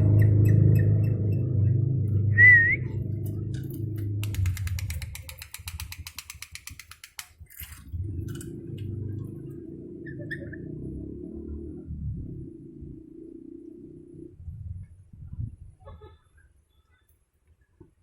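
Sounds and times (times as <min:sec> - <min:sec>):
wavering whistle: 0:02.3 - 0:02.9
rapid clicks: 0:03.2 - 0:08.5.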